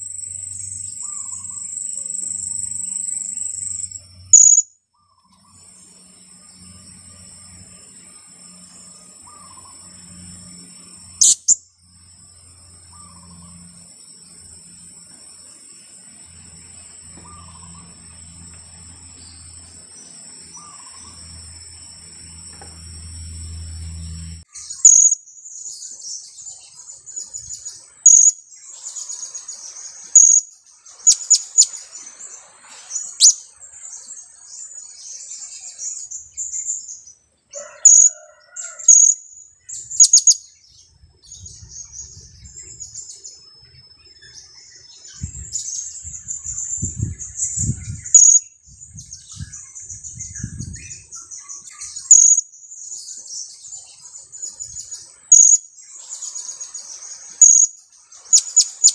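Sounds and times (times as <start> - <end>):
high bird twittering: 0.0 - 5.7, 11.1 - 11.6, 17.1 - 18.0, 20.4 - 21.4, 24.0 - 25.2, 27.2 - 29.5, 30.1 - 31.9, 32.9 - 33.5, 39.8 - 40.5, 44.3 - 52.5, 54.4 - 56.7, 57.4 - 58.9.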